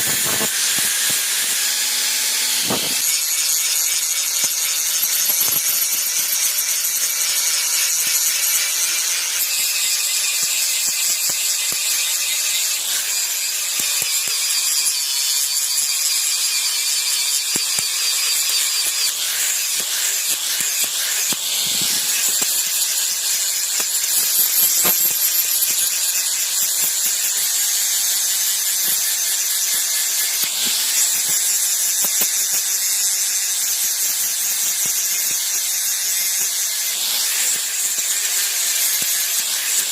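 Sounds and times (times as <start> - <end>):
electric grinder whining: 0.0 - 39.9.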